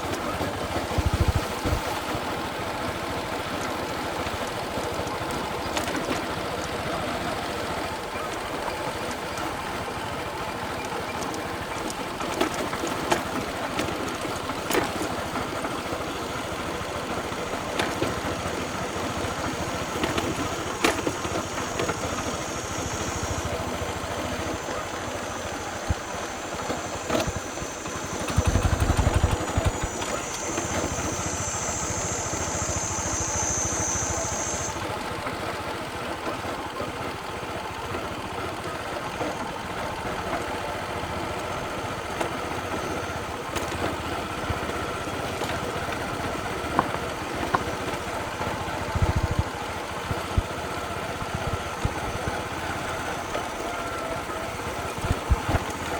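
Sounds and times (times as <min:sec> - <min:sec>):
small motorcycle engine: 0:00.0 - 0:55.9
high steady buzz: 0:13.5 - 0:35.7.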